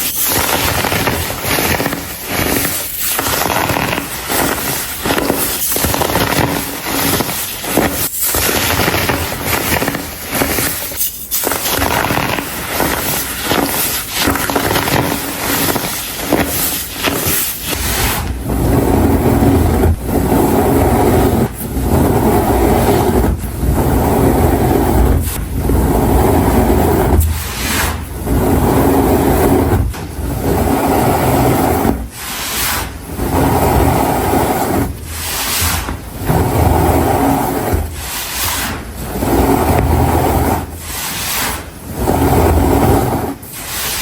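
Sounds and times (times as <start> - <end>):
baking soda crunching by hand: 0.0 - 29.8
powder squishing and rubbing: 0.0 - 44.0.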